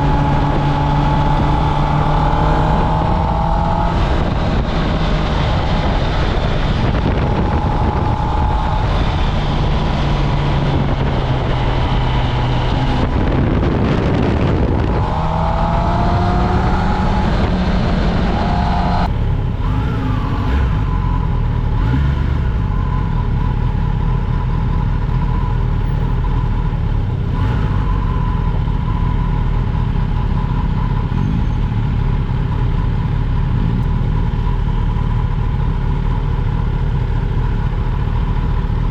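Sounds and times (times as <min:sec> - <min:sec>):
wind noise: 0:00.0 - 0:24.4
motorcycle engine: 0:00.0 - 0:38.9.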